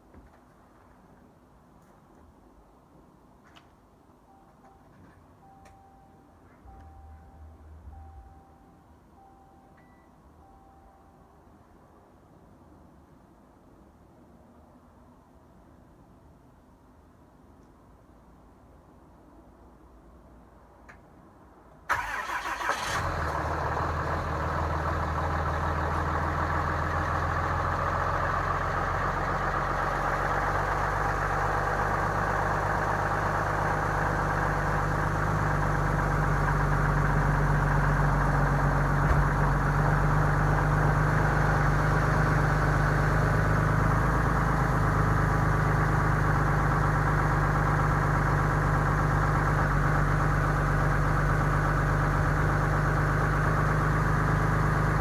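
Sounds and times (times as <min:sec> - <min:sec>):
diesel engine starting and idling: 0:21.9 - 0:55.0.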